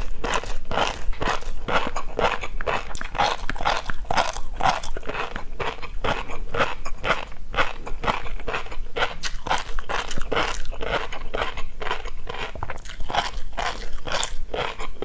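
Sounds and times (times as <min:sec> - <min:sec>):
chewing crunchy food: 0:00.0 - 0:15.0.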